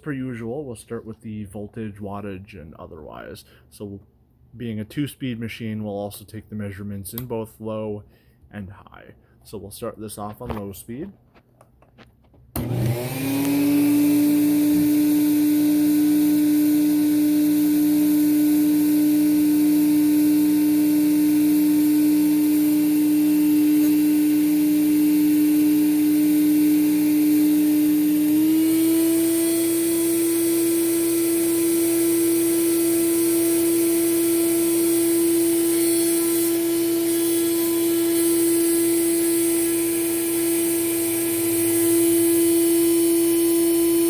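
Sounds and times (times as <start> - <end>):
vacuum cleaner motor hum: 12.5 - 44.0.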